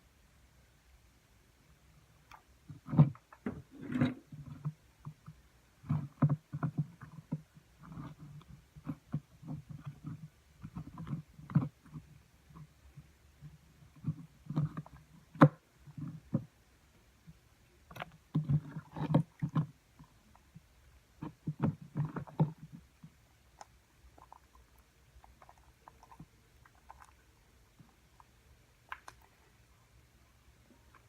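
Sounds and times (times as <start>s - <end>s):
slime squelching: 17.8s - 29.7s
small clicks and pops: 17.9s - 29.4s.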